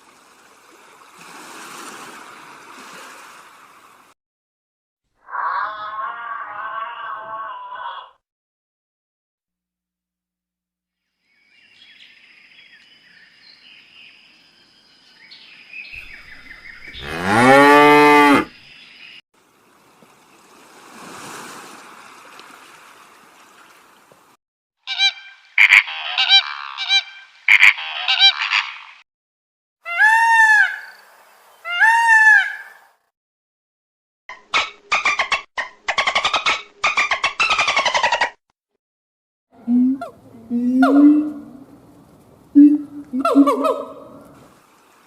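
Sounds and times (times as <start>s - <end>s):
cow mooing: 17.0s - 18.5s
geese honking: 24.9s - 28.8s.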